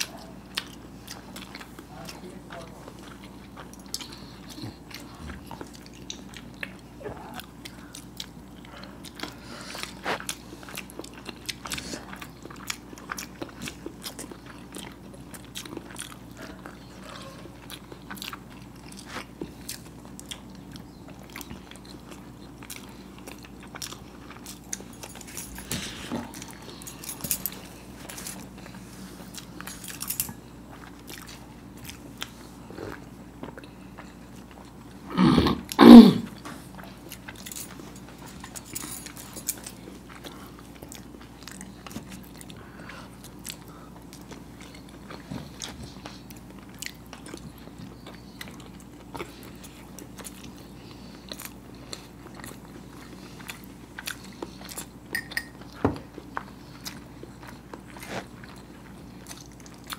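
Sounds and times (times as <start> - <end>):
soft wet chewing: 0.0 - 59.9.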